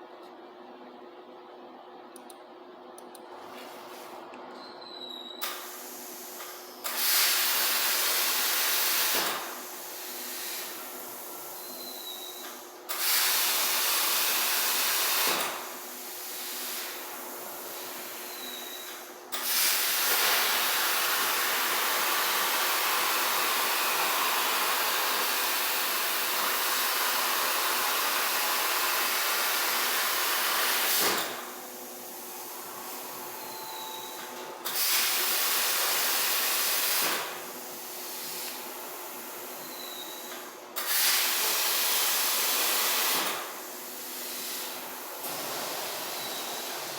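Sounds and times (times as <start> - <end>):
plasma cutter torch hissing: 5.4 - 11.3, 19.3 - 31.1, 40.8 - 45.0.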